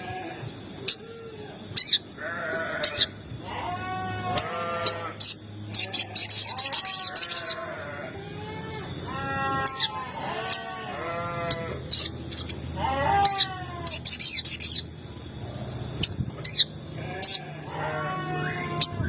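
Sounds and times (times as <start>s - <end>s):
drawn-out bird calls: 9.1s - 14.9s, 16.0s - 19.0s.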